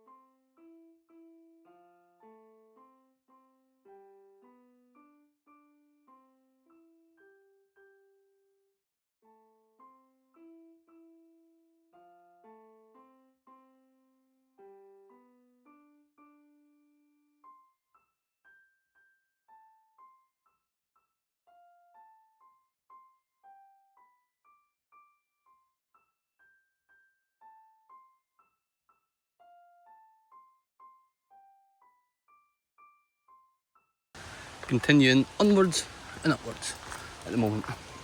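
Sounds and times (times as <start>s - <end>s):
quiet piano music: 0.0s - 8.5s, 9.3s - 17.7s, 29.4s - 30.6s, 34.2s - 38.0s.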